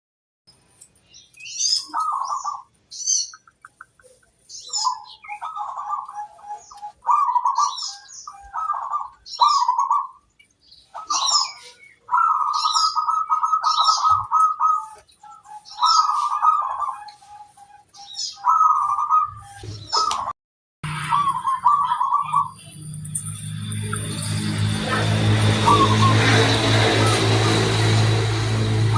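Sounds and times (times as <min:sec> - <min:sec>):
small birds chirping: 0:00.5 - 0:28.4
dove trilled cooing: 0:01.7 - 0:02.7, 0:04.0 - 0:10.2, 0:10.9 - 0:20.3, 0:20.9 - 0:22.6, 0:24.8 - 0:27.8.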